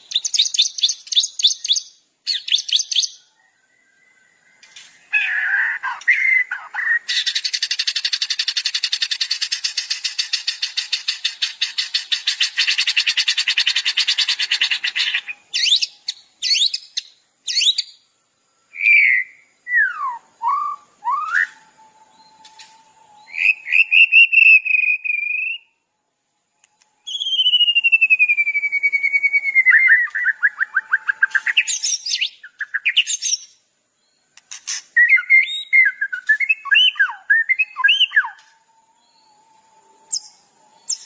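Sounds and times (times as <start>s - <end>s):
songbird calls and trills: 0.0s - 41.0s.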